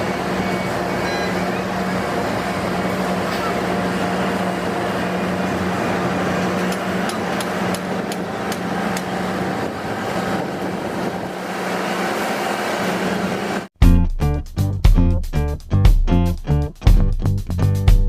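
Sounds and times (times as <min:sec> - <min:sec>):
heavy machinery engine hum: 0:00.0 - 0:13.7.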